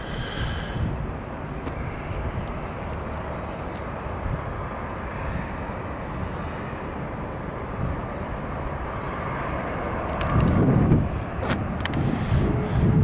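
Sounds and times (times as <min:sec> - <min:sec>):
jet engines rumbling with whine: 0:00.0 - 0:13.0.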